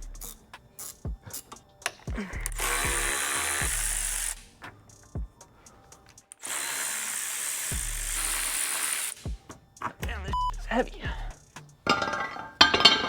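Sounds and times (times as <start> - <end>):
thudding music beat: 0.0 - 6.4, 7.7 - 13.0
power tool spinning nuts off: 2.5 - 4.4, 6.3 - 9.3.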